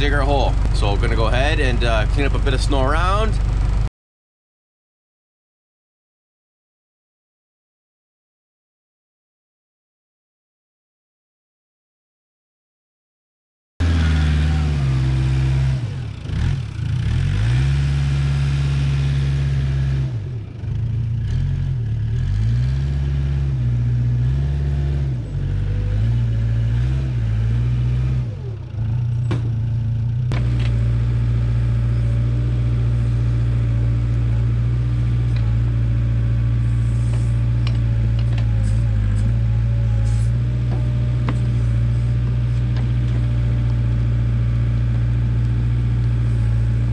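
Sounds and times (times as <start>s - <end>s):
backhoe diesel engine revving: 0.0s - 3.9s, 13.8s - 46.9s.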